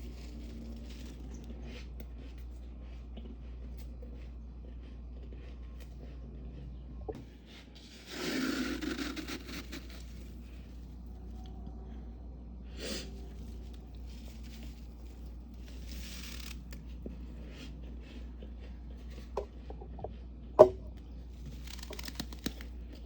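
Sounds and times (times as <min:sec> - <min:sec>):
frost crunching and scraping: 0:00.0 - 0:02.6, 0:07.8 - 0:11.3, 0:12.9 - 0:19.4, 0:21.2 - 0:23.0
steady low hum: 0:00.0 - 0:23.0.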